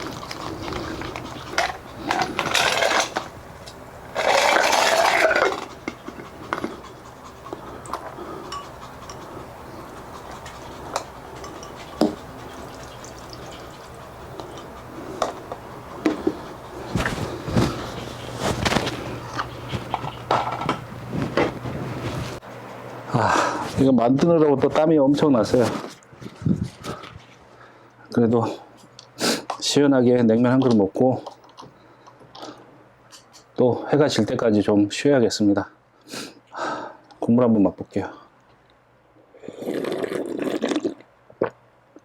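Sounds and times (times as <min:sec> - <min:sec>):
bowls and utensils clinking: 0:00.1 - 0:06.7, 0:10.4 - 0:14.6.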